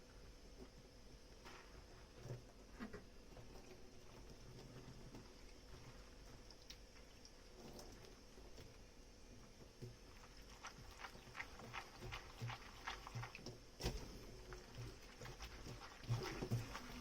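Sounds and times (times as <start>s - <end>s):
sponge squelching: 9.8s - 17.0s.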